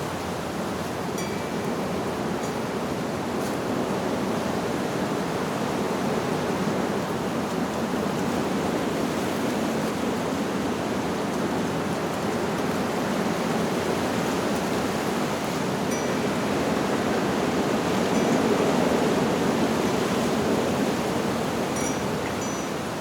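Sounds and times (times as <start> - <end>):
wind through leaves: 0.0 - 23.0
faint wind chime tones: 1.1 - 2.6, 15.9 - 17.2, 17.9 - 19.2, 21.6 - 23.0.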